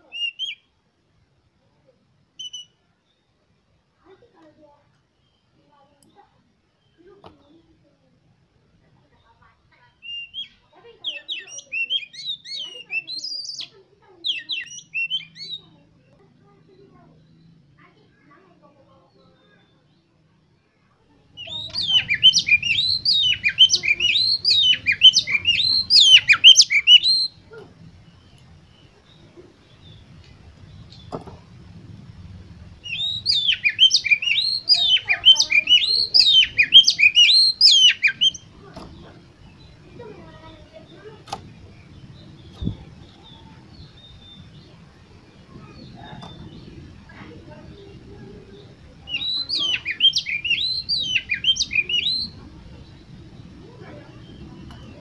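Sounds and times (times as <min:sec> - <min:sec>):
bird singing whistled notes: 0:00.1 - 0:00.7, 0:02.4 - 0:02.8, 0:10.0 - 0:13.7, 0:14.3 - 0:15.8, 0:21.4 - 0:27.4, 0:32.8 - 0:47.0, 0:48.6 - 0:55.0
noisy background: 0:21.3 - 0:55.0
low thump: 0:30.8 - 0:32.0.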